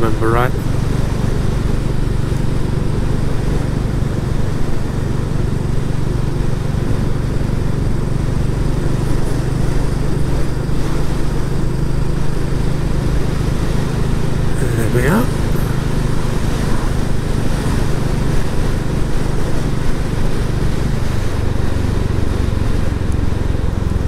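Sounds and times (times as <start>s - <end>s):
motorcycle engine running: 0.4s - 24.0s.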